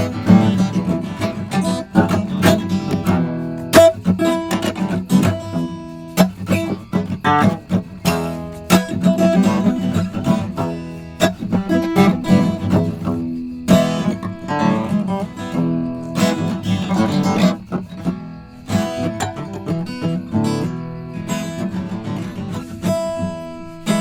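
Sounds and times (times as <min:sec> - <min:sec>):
acoustic guitar strummed and picked: 0:00.0 - 0:24.0.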